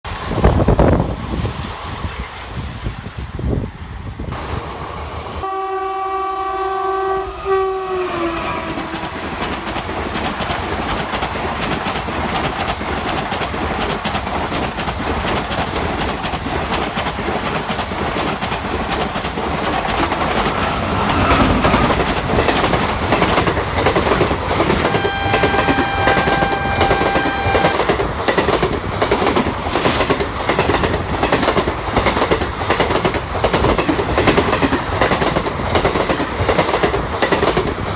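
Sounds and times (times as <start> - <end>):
locomotive horn: 5.4 - 9.2, 24.8 - 27.9
wheels clacking over rail joints: 8.7 - 37.9.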